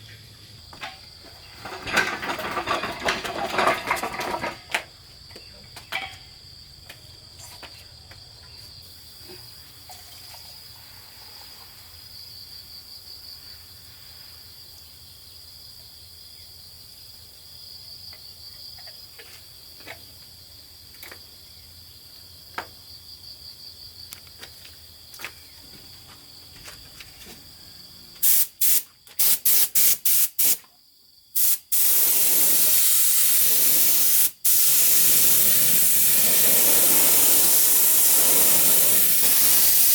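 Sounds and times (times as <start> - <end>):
insects chirping: 0.0 - 39.9
paint spray gun hissing: 28.2 - 30.6, 31.4 - 39.9.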